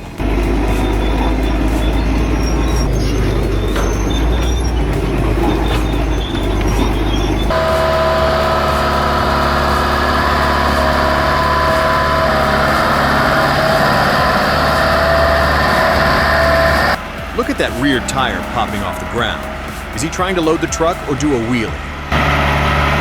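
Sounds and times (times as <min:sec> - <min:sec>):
diesel machinery engine rumble: 0:00.0 - 0:23.0.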